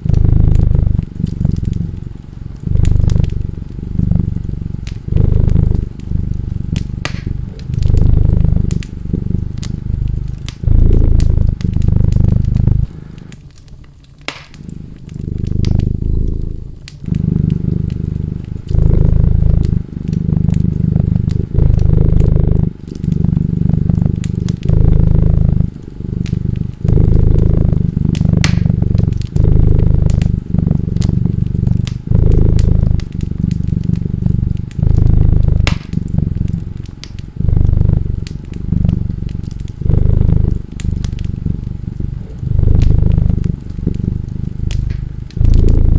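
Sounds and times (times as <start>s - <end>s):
cat purring loudly: 0.0s - 45.9s
wood fire crackling and popping: 0.0s - 45.9s.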